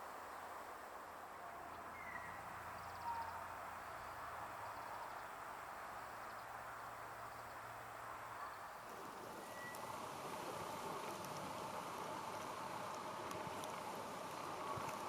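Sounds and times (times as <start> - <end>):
steady outdoor hiss: 0.0 - 15.0
faint bird chirps: 1.7 - 5.3, 9.4 - 9.9.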